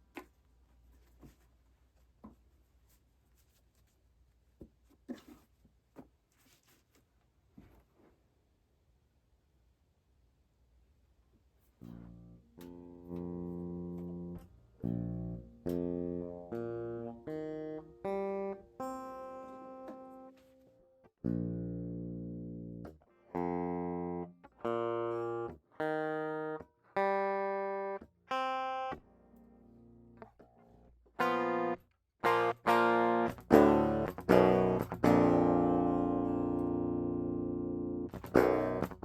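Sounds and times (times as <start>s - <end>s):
electric guitar single notes: 11.8s - 20.4s, 21.2s - 30.3s, 31.2s - 39.0s
electric guitar strummed chords: 11.9s - 20.4s, 21.2s - 30.2s, 31.2s - 39.0s.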